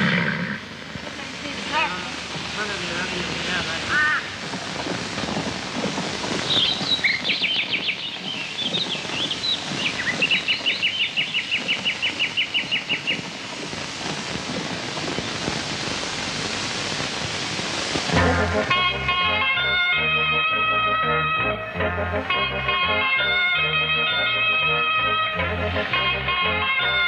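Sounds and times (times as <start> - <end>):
background noise: 0.0 - 27.0
birds chirping and trilling: 6.5 - 13.2
guitar music: 18.1 - 27.0.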